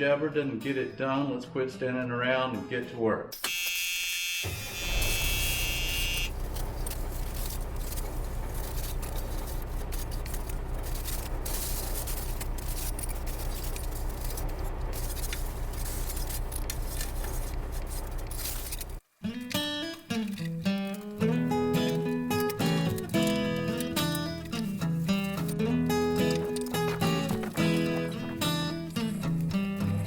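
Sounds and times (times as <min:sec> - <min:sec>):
high steady buzzer tone: 0:03.4 - 0:06.4
engine running: 0:04.5 - 0:19.0, 0:20.8 - 0:30.0.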